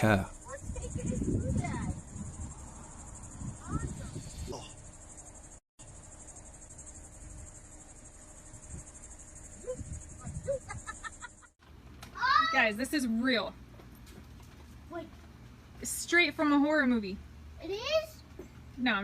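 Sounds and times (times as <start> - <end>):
insects chirping: 0.0 - 11.6.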